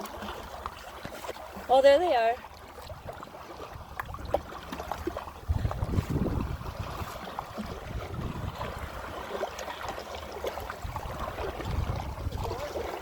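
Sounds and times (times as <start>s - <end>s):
water splashing against kayak: 0.0s - 13.0s
wind rumbling on microphone: 2.8s - 13.0s.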